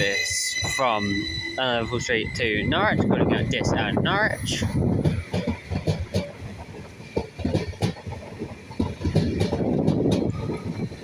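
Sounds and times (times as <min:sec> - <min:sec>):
train rumbling: 0:00.0 - 0:11.0
wheels knocking over rail joints: 0:04.8 - 0:11.0.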